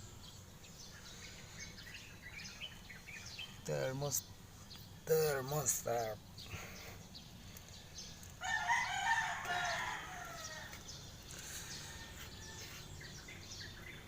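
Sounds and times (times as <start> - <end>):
rooster crowing: 8.4 - 10.9, 11.6 - 13.1.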